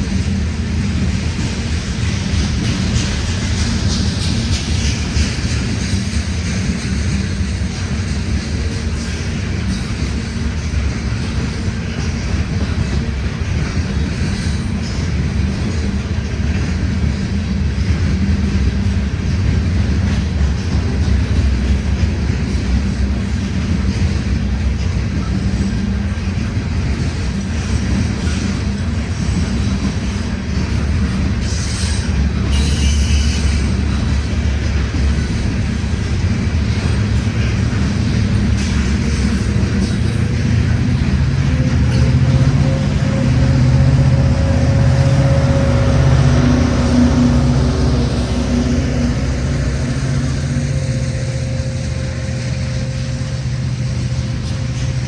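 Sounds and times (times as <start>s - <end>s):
freight train rumble: 0.0s - 55.0s
train wheel noise on rails: 0.0s - 55.0s.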